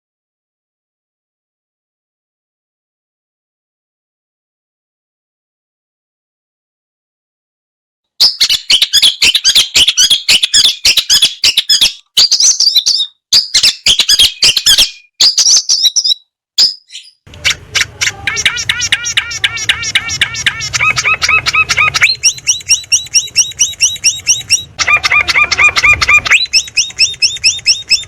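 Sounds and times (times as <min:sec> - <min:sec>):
fast repeated chirps: 0:08.2 - 0:28.0
songbird chirping: 0:08.2 - 0:28.0
low hum: 0:17.3 - 0:28.0.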